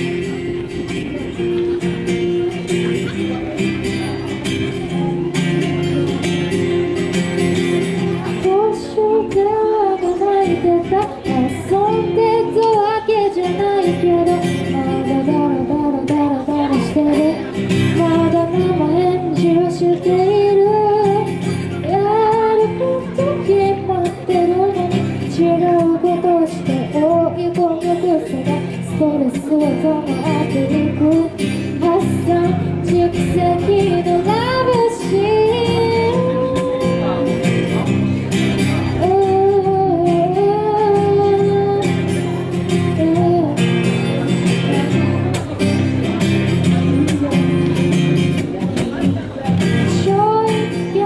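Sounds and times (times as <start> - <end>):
guitar accompaniment: 0.0 - 51.0
woman singing: 7.9 - 45.3, 49.7 - 51.0.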